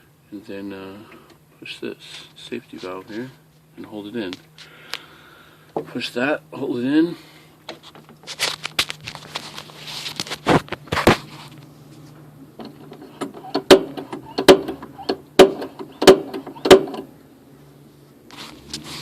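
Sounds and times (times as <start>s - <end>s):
hands rustling: 7.7s - 12.2s
knocks on controls: 13.2s - 17.0s.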